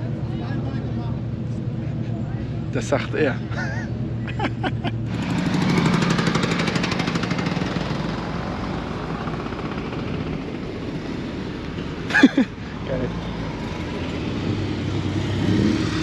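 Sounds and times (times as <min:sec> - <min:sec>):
car engine revving in burnout: 0:14.7 - 0:16.0.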